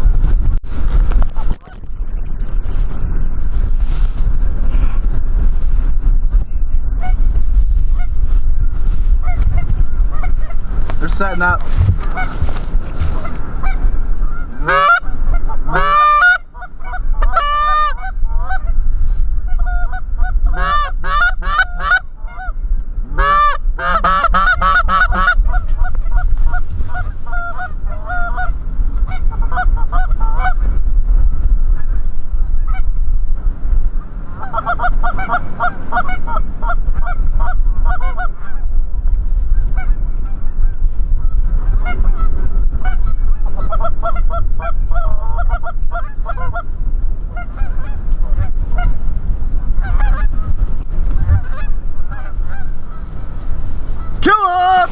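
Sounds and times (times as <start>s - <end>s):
steady low rumble: 0.0s - 54.9s
goose honking and clucking: 6.4s - 18.8s, 19.4s - 30.7s, 34.0s - 38.6s, 39.6s - 46.7s, 47.3s - 49.0s, 49.8s - 54.9s.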